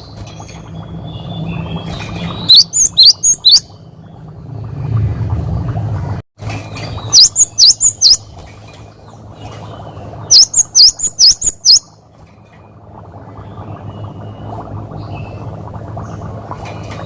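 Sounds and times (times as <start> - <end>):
low hum: 0.0 - 17.0
bird whistled song: 0.4 - 3.8, 6.8 - 8.3, 10.3 - 12.0.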